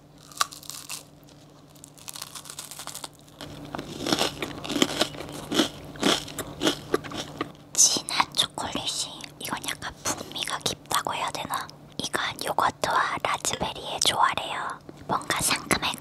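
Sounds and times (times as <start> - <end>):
crunchy chewing: 0.2 - 7.6.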